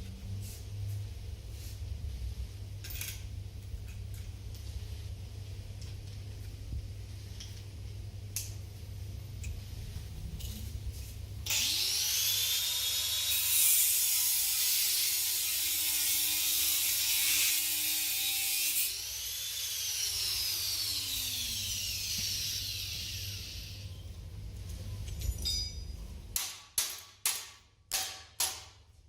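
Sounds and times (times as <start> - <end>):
high-speed power tool whine: 11.5 - 23.9.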